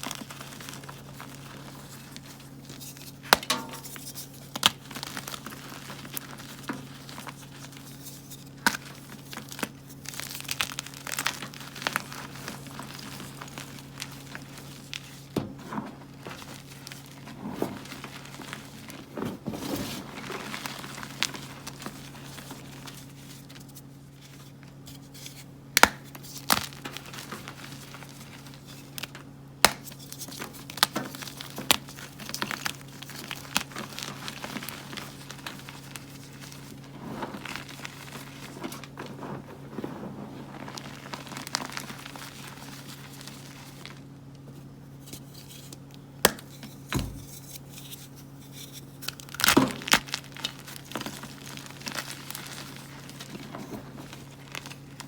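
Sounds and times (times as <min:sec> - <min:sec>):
chalk blocks crushed by hand: 0:29.6 - 0:39.9.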